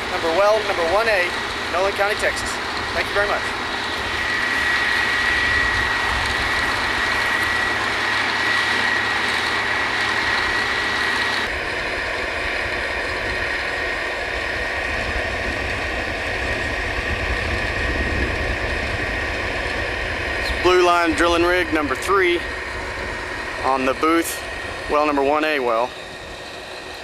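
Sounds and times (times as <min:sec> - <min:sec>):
drilling rig engine drone: 0:00.0 - 0:27.0
high machine whine: 0:00.0 - 0:27.0.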